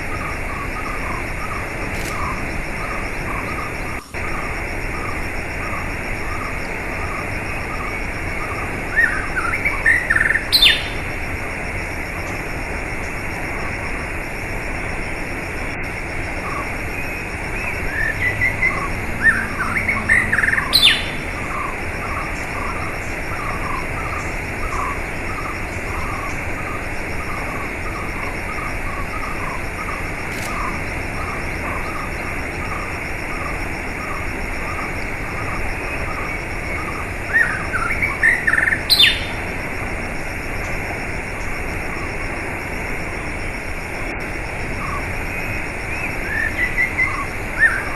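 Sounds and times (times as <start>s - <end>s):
birds singing: 0.0s - 11.2s, 16.4s - 39.6s, 44.7s - 47.9s.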